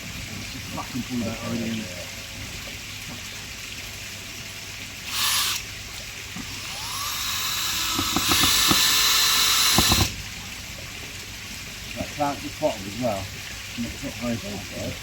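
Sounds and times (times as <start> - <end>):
cordless drill driving screws: 5.1 - 5.6, 6.5 - 10.1
knocks: 7.9 - 9.0.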